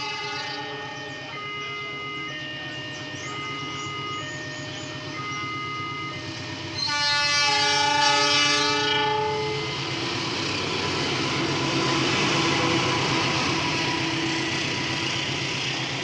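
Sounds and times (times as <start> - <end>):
multi-note train horn: 0.0 - 9.9
train rumbling past: 0.0 - 16.0.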